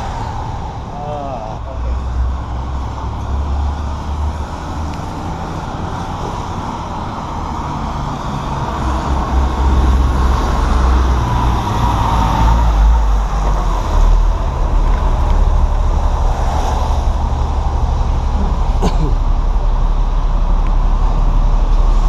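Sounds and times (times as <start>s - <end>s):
street traffic noise: 0.0s - 22.0s
vehicle engine rumbling: 0.0s - 22.0s.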